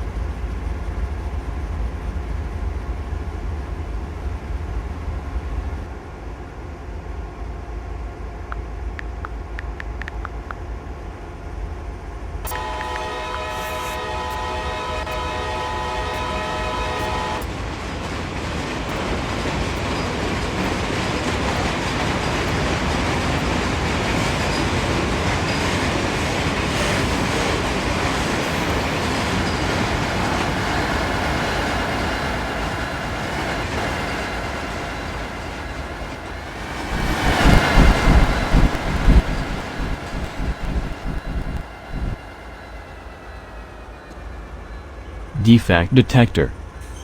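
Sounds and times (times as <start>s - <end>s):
freight train rumbling on rails: 0.0s - 45.4s
train air horn: 12.5s - 17.5s, 26.7s - 27.8s, 36.9s - 42.2s
loud uneven low rumble: 36.9s - 42.2s.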